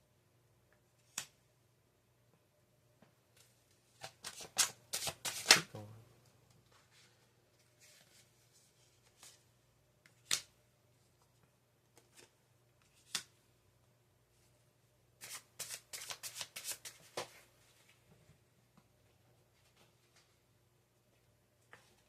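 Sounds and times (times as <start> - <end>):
cards being shuffled: 4.0 - 5.7, 15.2 - 17.3
card snaps: 10.2 - 10.5.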